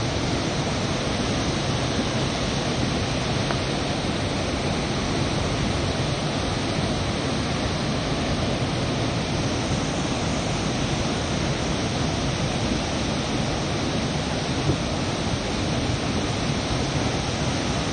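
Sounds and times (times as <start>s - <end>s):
water rushing through dam gates: 0.0s - 17.9s.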